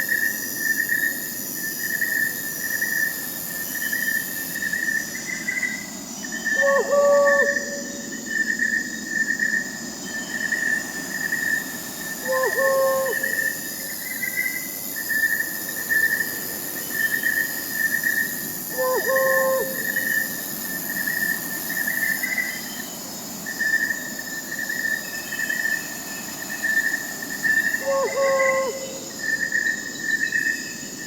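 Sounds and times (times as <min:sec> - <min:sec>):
crickets chirping: 0:00.0 - 0:31.0
high insect trills: 0:00.0 - 0:31.0
owl hooting: 0:06.5 - 0:08.0, 0:12.2 - 0:13.6, 0:18.7 - 0:20.2, 0:27.8 - 0:29.1.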